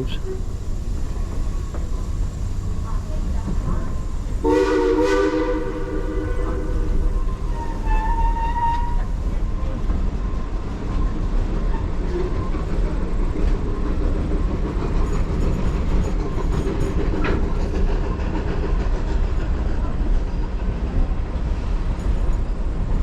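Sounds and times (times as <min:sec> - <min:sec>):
railroad car rolling on track: 0:00.0 - 0:23.0
high squeal: 0:07.2 - 0:09.1.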